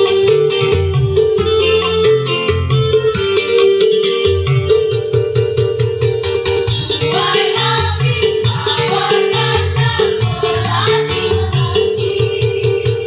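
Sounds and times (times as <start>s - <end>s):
instrumental accompaniment with beat: 0.0s - 13.0s
choir singing: 6.9s - 13.0s.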